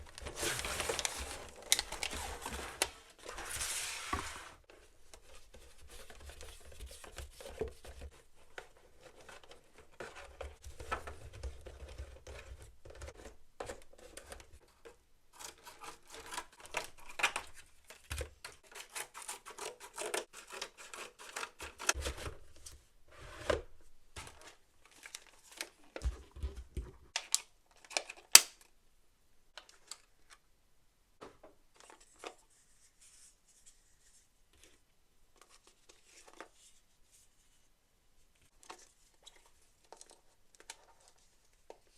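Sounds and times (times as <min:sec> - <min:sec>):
packaging rustling and scraping: 0:00.0 - 0:27.1.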